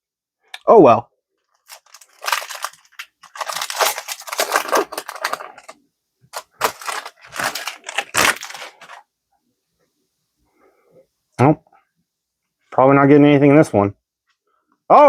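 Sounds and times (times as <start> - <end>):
foil pack crinkling and tearing: 1.5 - 9.0.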